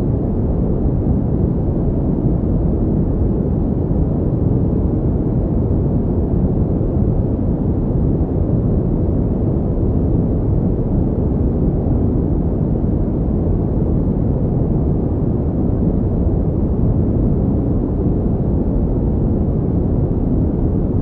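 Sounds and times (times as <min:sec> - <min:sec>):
deep rumbling pink noise: 0:00.0 - 0:21.0.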